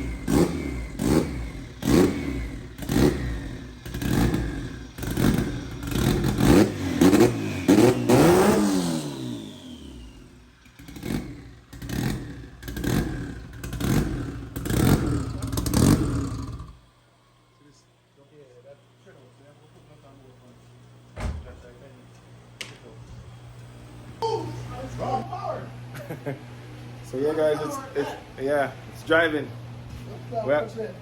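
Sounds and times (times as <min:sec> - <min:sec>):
car engine revving: 0:00.0 - 0:16.9.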